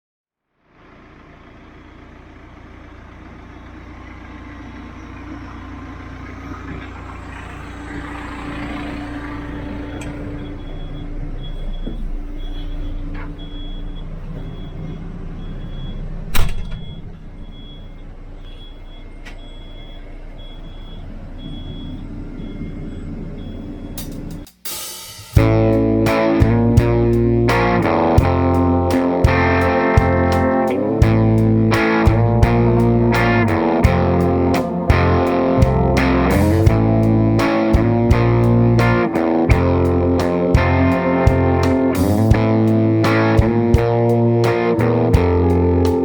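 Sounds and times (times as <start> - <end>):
diesel engine running: 0.6 - 24.4, 25.4 - 46.0
high electronic beeps: 6.4 - 24.4.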